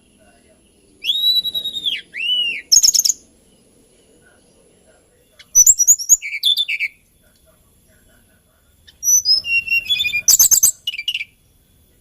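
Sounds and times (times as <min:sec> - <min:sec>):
bird singing whistled notes: 0:00.0 - 0:03.8, 0:05.2 - 0:07.2, 0:08.9 - 0:11.5.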